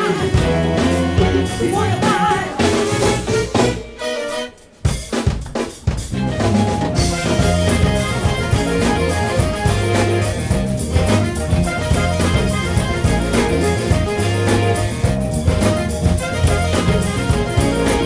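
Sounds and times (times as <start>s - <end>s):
person singing: 0.0s - 4.1s
live soul band playing: 0.0s - 18.0s
drum hits: 4.7s - 18.0s.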